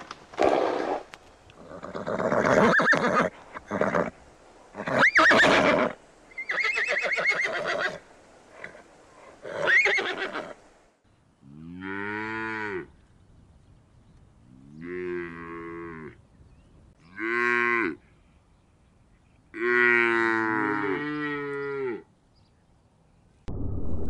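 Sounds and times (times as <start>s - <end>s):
horses whinnying: 1.6s - 4.1s, 4.8s - 8.0s, 9.4s - 10.6s.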